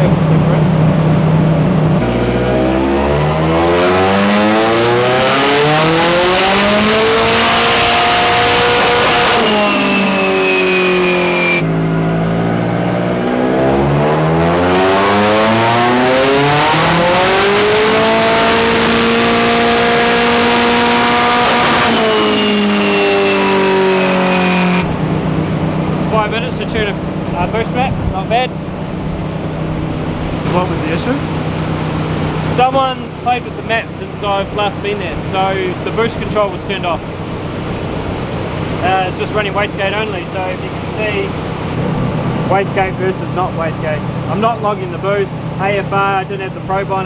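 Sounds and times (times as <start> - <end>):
car engine revving on dyno: 2.0 - 32.8.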